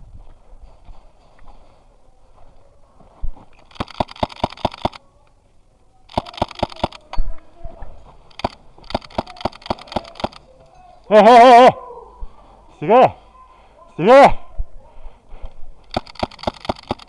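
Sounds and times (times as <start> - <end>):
airsoft gun firing bursts: 3.7 - 5.0, 6.1 - 7.0, 8.4 - 10.4, 15.9 - 17.0.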